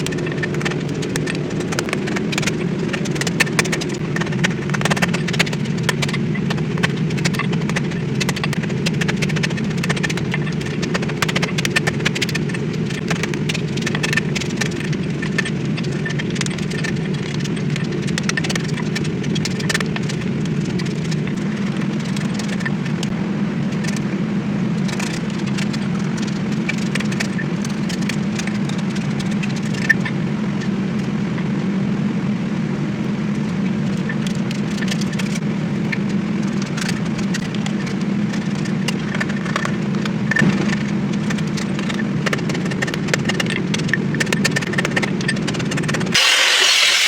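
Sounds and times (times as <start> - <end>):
machine humming: 0.0 - 26.0, 46.1 - 47.0.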